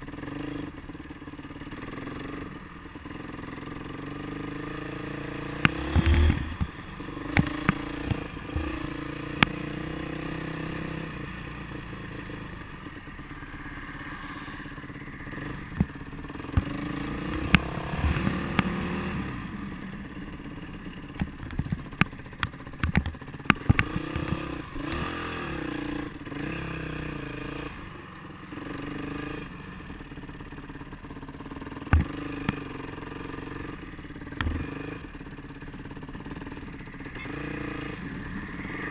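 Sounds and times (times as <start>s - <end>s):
motorcycle engine running: 0.0s - 38.9s
sharp knocks and clatter: 5.6s - 9.6s, 21.1s - 24.5s.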